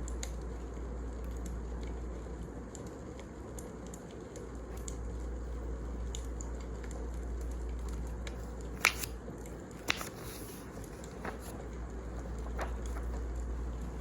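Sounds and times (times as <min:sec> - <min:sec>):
fire crackles: 0:00.0 - 0:14.0
wood fire rumbling: 0:10.7 - 0:14.0.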